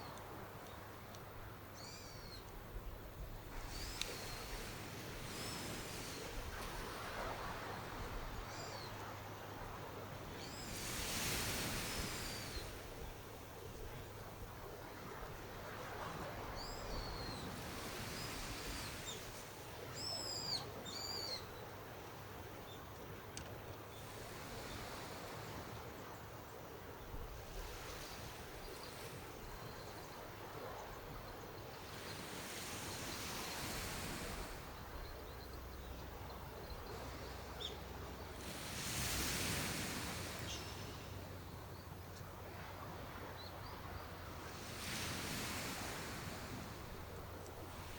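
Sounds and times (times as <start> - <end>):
background hiss: 0.0 - 47.9
wind: 0.0 - 47.9
ocean surf washing: 2.6 - 20.9, 27.2 - 47.9
small click: 4.0 - 4.2, 23.0 - 23.6
bird whistled calls: 19.9 - 21.5.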